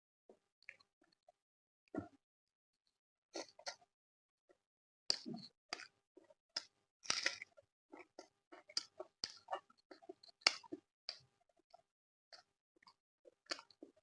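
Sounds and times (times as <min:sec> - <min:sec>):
person chewing food: 0:03.4 - 0:03.8, 0:05.1 - 0:14.0.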